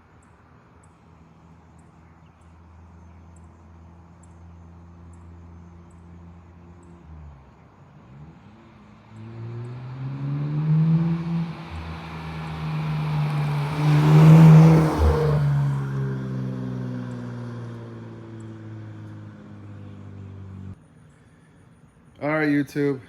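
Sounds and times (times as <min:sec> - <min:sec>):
car exhaust passing by: 0:05.9 - 0:20.8.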